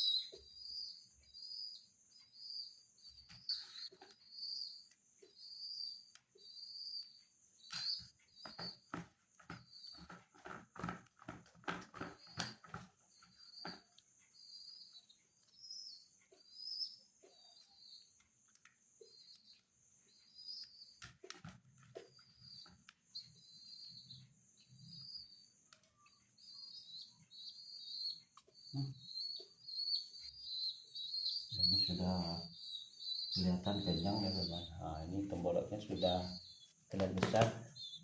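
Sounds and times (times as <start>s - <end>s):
pigeon squab peeping: 0.0s - 38.0s.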